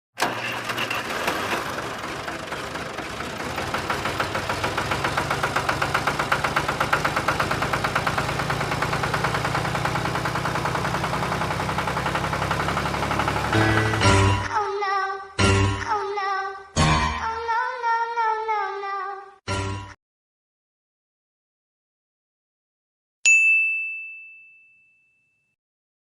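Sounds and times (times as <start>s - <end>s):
tractor engine idling: 0.2s - 14.5s.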